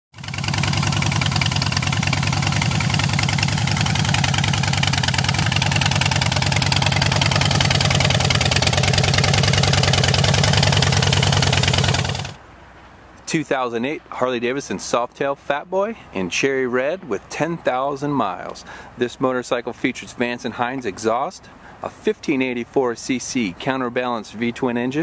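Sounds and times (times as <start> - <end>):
motorcycle engine idling: 0.2 - 12.4.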